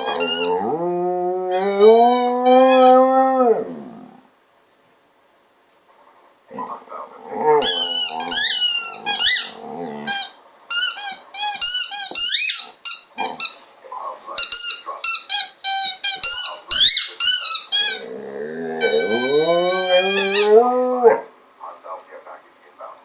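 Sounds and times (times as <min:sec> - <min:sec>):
dog whining: 0:00.0 - 0:04.2, 0:07.3 - 0:13.6, 0:15.3 - 0:21.3
dog moaning: 0:00.0 - 0:04.3, 0:06.5 - 0:10.4, 0:17.7 - 0:21.3.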